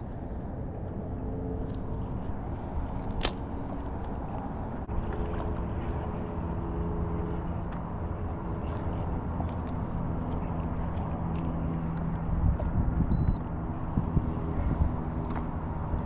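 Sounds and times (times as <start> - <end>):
boat motor humming: 0.0 - 16.0
wind: 0.0 - 16.0
water noise: 1.7 - 12.8.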